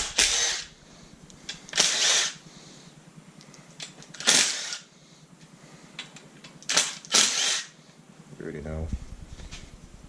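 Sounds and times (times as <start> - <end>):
handheld power tool running: 0.0 - 0.8, 1.7 - 2.4, 4.1 - 4.9, 6.6 - 7.8.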